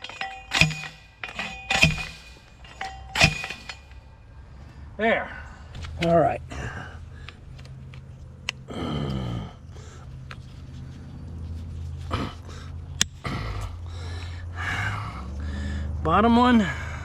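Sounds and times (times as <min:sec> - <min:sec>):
steady low hum: 0:00.0 - 0:05.0.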